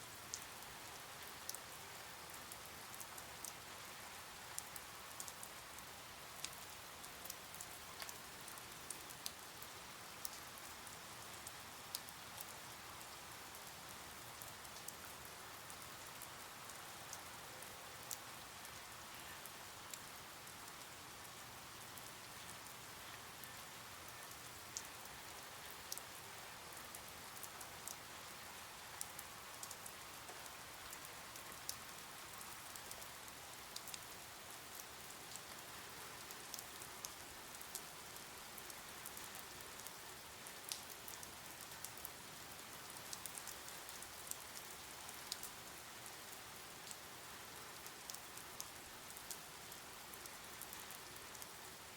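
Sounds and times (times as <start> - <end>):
raindrops ticking on a surface: 0.0 - 51.9
soft steady rain: 0.0 - 51.9.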